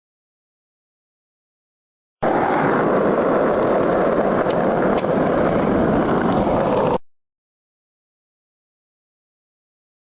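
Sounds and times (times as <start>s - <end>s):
skateboard wheels rolling on pavement: 2.2s - 7.0s.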